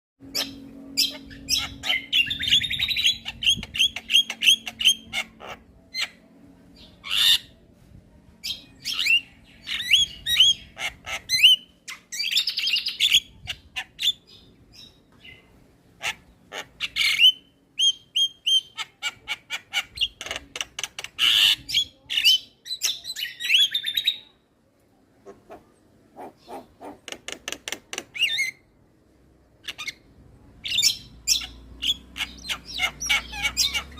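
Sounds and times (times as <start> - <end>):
bird chirping and squawking: 0.3 - 7.6, 8.5 - 15.4, 16.0 - 24.2, 25.3 - 28.7, 29.6 - 33.9.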